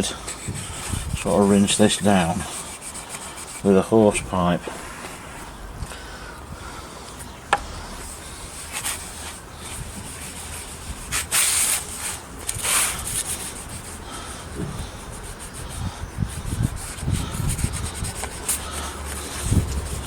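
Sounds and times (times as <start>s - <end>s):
cloth scrubbing wood: 0.0s - 4.2s, 8.5s - 20.0s
low dull thuds: 14.5s - 15.0s.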